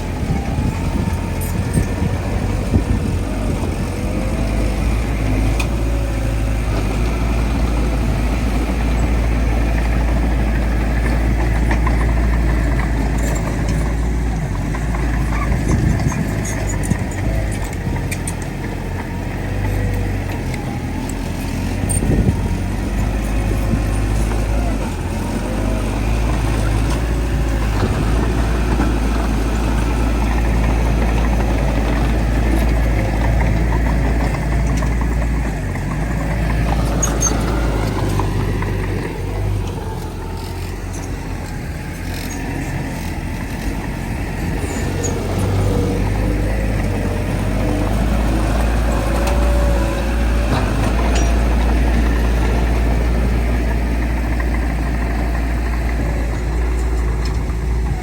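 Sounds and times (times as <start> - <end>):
bulldozer diesel engine rumbling: 0.0 - 58.0
light clicks and clanks: 10.6 - 25.0.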